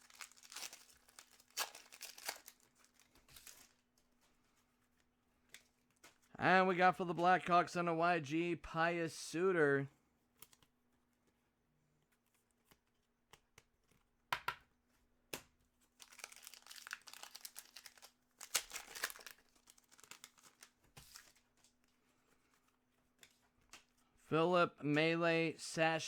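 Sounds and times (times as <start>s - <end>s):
foil wrappers and cards rustling: 0.0s - 4.3s, 15.9s - 22.7s.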